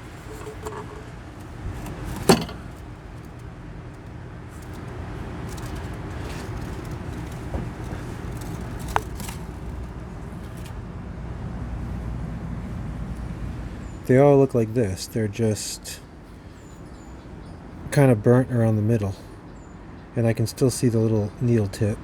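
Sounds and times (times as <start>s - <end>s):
hand tools clicking and knocking: 0.0s - 3.4s, 4.5s - 10.7s
low background hum: 0.0s - 22.0s.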